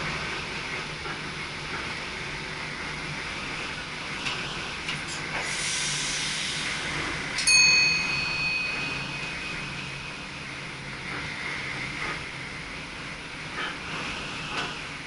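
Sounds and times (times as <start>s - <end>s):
electric train running noise: 0.0s - 15.0s
bright chime: 7.4s - 10.5s.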